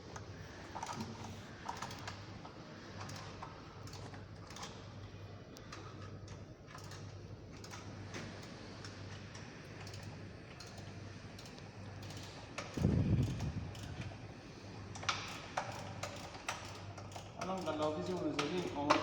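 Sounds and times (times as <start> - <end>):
steady low hum: 0.0 - 18.4
hand tools clicking on metal: 15.0 - 19.0.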